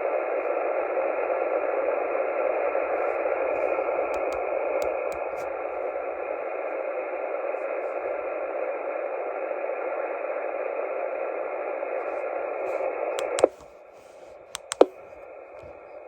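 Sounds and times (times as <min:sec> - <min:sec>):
sharp clicks: 0:04.1 - 0:05.6, 0:13.2 - 0:13.7, 0:14.6 - 0:15.0.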